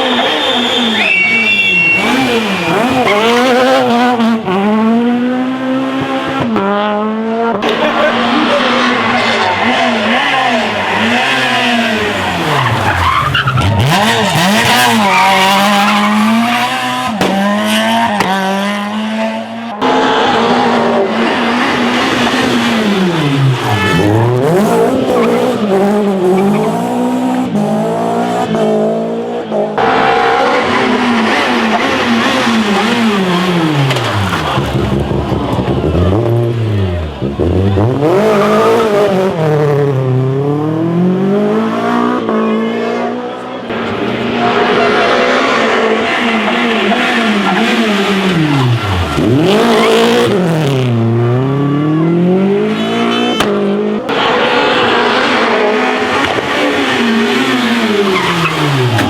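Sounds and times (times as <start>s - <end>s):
tyre squeal: 0.0s - 3.6s
rally car engines revving: 0.0s - 59.0s.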